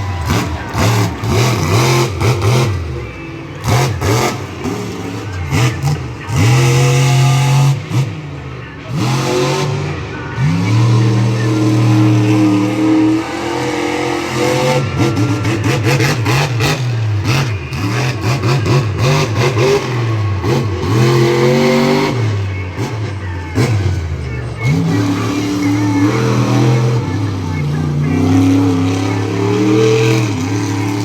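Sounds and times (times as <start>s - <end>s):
monster truck engine revving: 0.0s - 31.0s.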